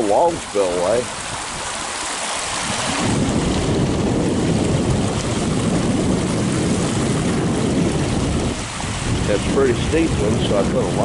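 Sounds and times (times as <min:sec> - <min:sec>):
water rushing down spillway: 0:00.0 - 0:11.0.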